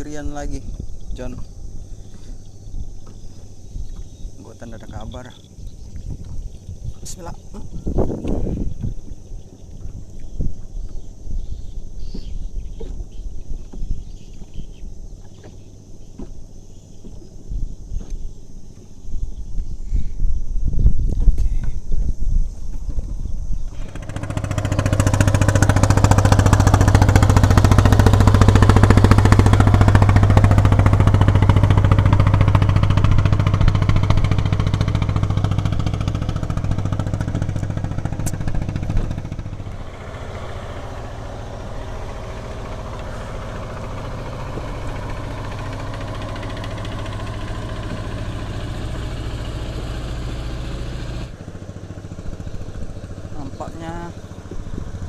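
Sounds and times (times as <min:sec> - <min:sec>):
small engine humming: 0:23.0 - 0:55.0.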